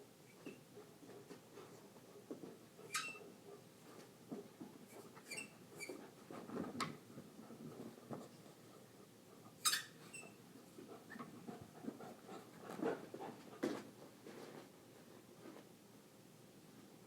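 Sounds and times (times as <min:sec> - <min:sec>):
squeaky toy squeaks: 0:02.9 - 0:03.2, 0:09.6 - 0:10.4.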